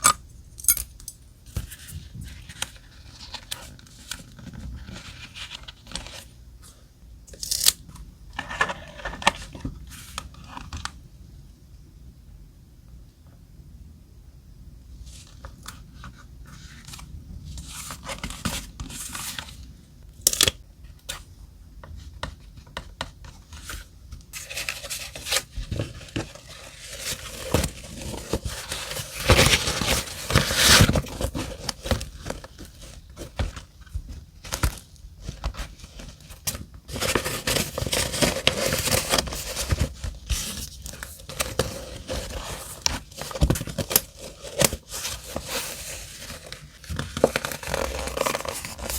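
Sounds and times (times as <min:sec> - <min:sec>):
paper rustling and crinkling: 0:01.5 - 0:06.4, 0:22.2 - 0:48.9
paper tearing: 0:47.3 - 0:48.9.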